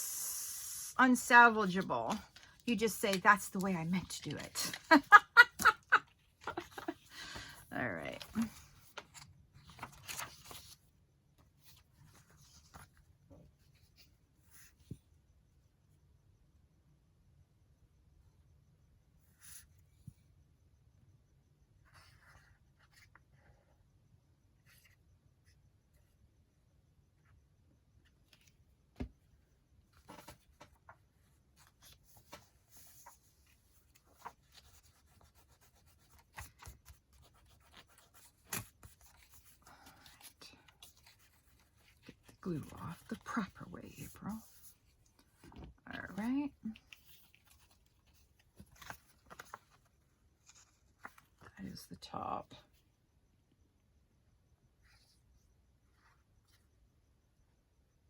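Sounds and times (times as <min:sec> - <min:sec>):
paper rustling: 0:01.6 - 0:10.8, 0:29.9 - 0:51.4.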